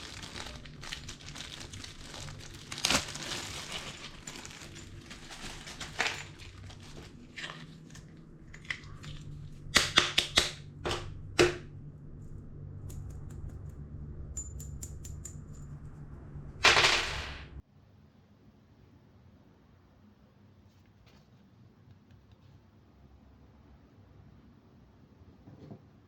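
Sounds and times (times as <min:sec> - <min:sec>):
packaging rustle: 0:00.0 - 0:09.4
steady low hum: 0:00.0 - 0:20.5
sharp clicks and snaps: 0:12.8 - 0:15.8.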